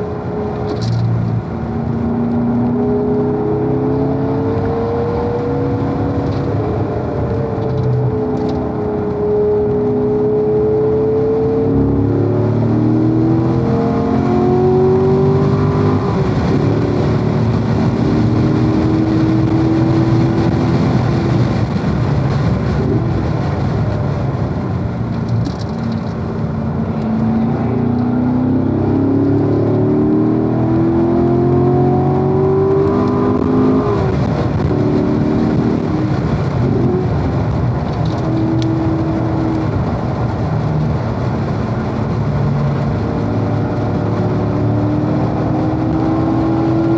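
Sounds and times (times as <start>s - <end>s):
car engine at full throttle: 0.0s - 46.9s.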